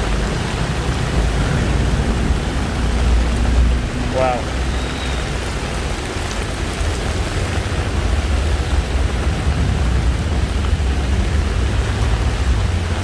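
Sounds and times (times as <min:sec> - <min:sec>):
deep low rumble: 0:00.0 - 0:04.7
heavy rain falling: 0:00.0 - 0:13.0.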